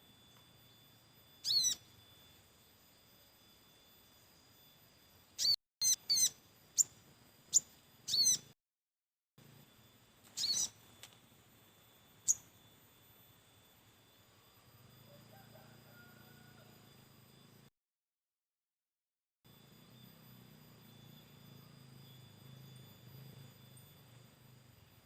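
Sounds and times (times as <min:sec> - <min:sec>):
bird chirping high: 0:01.4 - 0:01.9, 0:05.4 - 0:08.5, 0:10.3 - 0:10.8.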